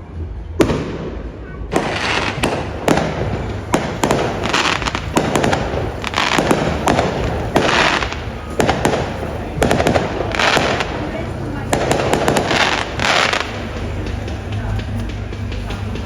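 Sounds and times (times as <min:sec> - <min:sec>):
fireworks banging: 0:00.3 - 0:16.0
fireworks crackling: 0:00.3 - 0:16.0.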